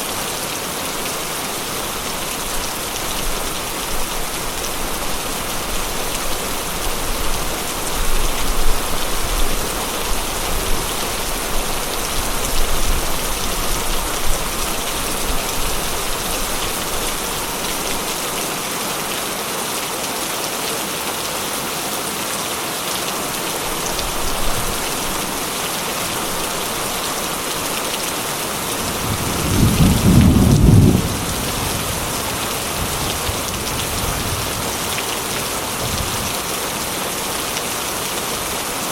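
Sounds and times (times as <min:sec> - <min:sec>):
heavy rain: 0:00.0 - 0:38.9
thunder rumbling: 0:28.8 - 0:34.7.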